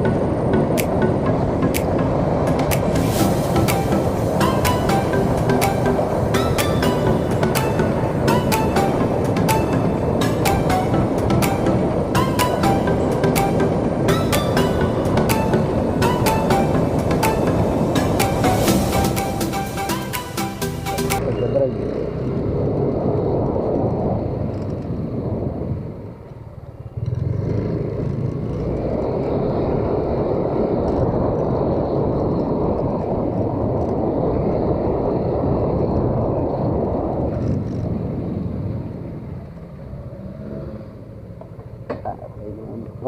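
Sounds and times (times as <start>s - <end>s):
wind rushing on microphone: 21.2s - 41.8s
motorcycle engine: 26.2s - 30.7s.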